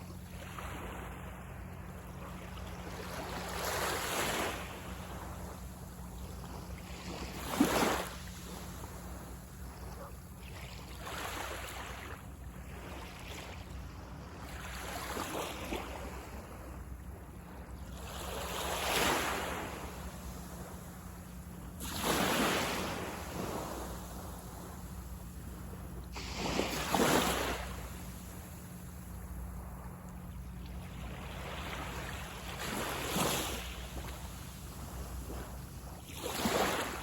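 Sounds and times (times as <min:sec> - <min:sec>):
sea waves breaking on beach: 0:00.0 - 0:37.0
steady low rumble: 0:19.4 - 0:37.0.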